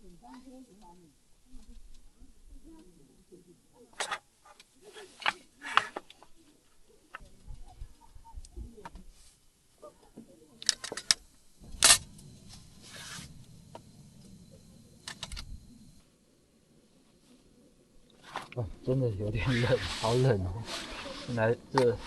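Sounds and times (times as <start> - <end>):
short hiss: 11.6 - 16.0, 19.4 - 22.0.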